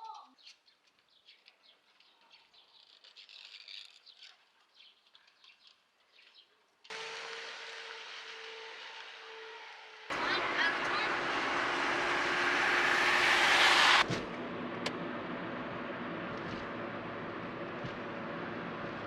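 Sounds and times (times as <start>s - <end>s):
low hum: 10.1s - 19.0s.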